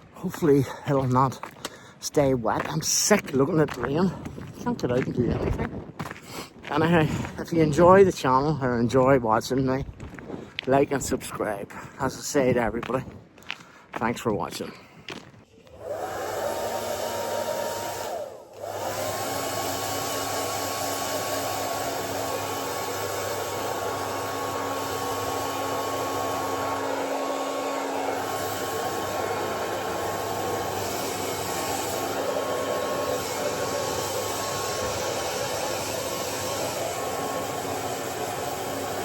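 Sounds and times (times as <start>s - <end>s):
hair dryer blowing: 15.7s - 39.0s.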